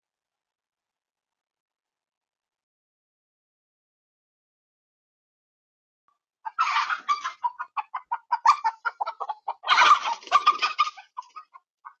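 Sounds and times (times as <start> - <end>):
chickens clucking and squawking: 6.4 - 12.0.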